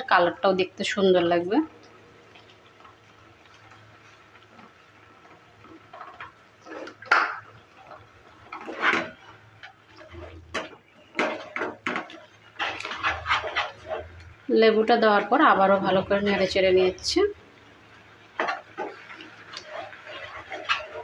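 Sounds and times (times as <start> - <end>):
spoon scraping a pan: 3.7 - 17.0, 18.3 - 21.0.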